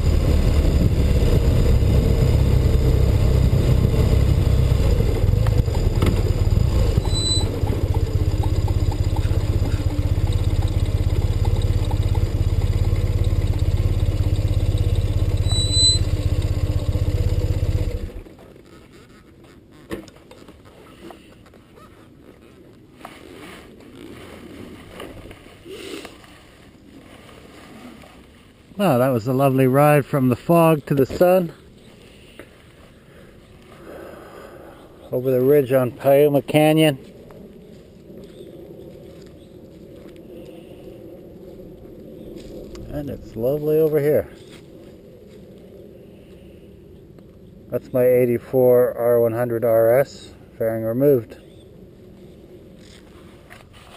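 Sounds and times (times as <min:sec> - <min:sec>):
motorcycle engine running: 0:00.0 - 0:18.4, 0:41.8 - 0:44.6.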